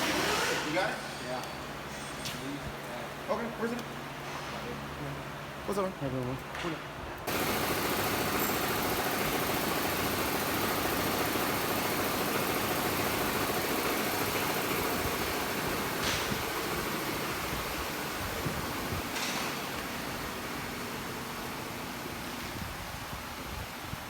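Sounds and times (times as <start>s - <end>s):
mechanical running noise with hiss: 7.2s - 24.0s.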